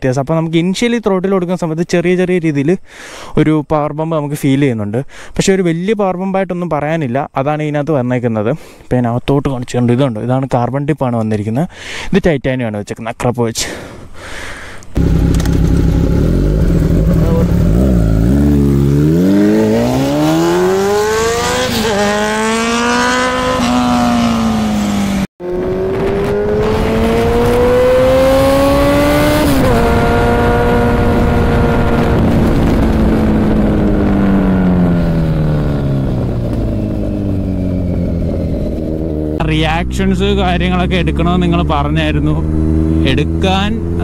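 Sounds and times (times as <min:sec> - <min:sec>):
motorcycle engine accelerating: 0:15.0 - 0:44.0.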